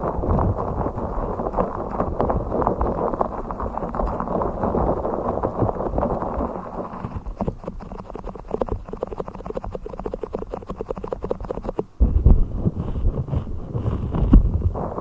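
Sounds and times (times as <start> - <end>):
low rubbing rumble: 12.0 - 15.0.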